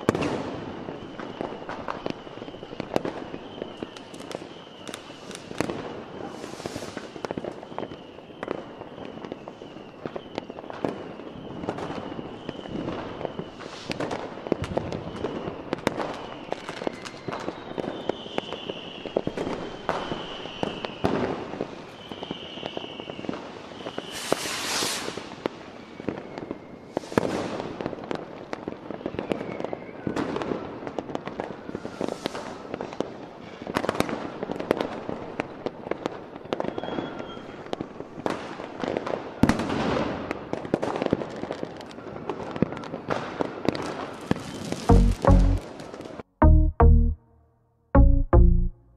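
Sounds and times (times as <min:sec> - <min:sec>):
high whistling fireworks: 0:00.0 - 0:46.2
hissing firework burst: 0:04.9 - 0:07.4, 0:11.9 - 0:15.4, 0:23.4 - 0:27.8, 0:31.6 - 0:33.0
fireworks shell bursts and crackling: 0:24.1 - 0:25.4.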